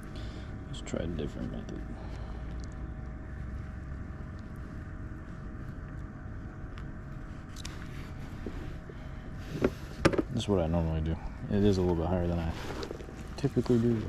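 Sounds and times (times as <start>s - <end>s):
distant motorboat engine: 0.0s - 14.0s.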